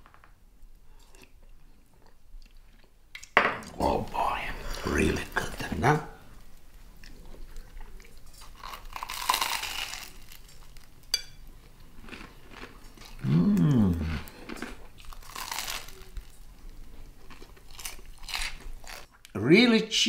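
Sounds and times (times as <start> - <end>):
crunching and chewing bread: 6.9 - 19.3
person humming mmm: 13.2 - 14.5.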